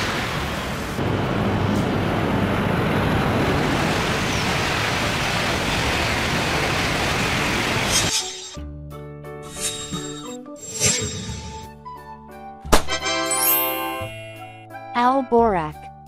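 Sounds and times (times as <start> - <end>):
bullet train rushing past: 0.0 - 8.5
music: 8.2 - 16.0.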